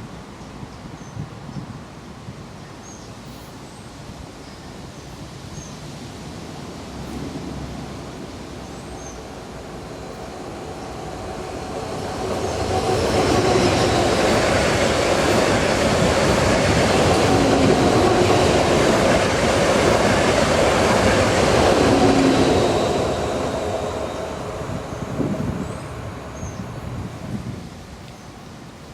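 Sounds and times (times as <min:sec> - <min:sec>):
train wheels on rails: 0:05.9 - 0:28.2.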